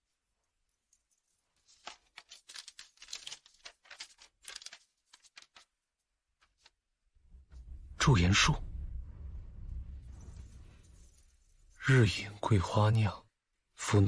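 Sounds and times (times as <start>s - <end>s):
paper crinkling and rustling: 1.2s - 6.8s.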